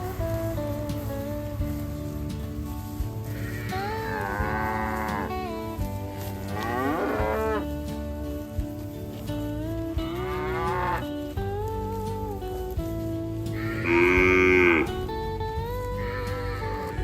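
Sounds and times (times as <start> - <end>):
cattle mooing: 3.2 - 8.5, 9.6 - 11.4, 13.5 - 17.0.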